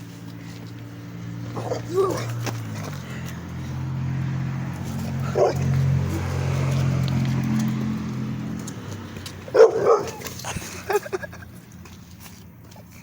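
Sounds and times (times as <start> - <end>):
dog barking: 5.2 - 5.7, 9.5 - 10.3.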